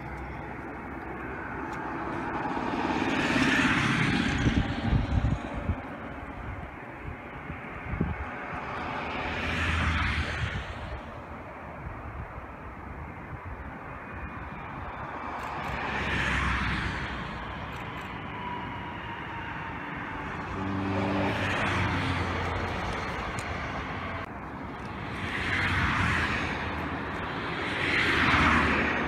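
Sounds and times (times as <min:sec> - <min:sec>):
train passing: 0:00.0 - 0:11.8, 0:13.8 - 0:29.0
train drive hum: 0:14.5 - 0:29.0.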